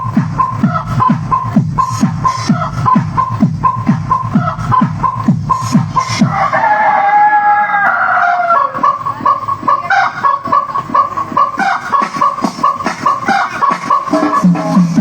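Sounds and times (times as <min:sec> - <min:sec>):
background music with beat: 0:00.0 - 0:15.0
rooster crowing: 0:06.2 - 0:09.1.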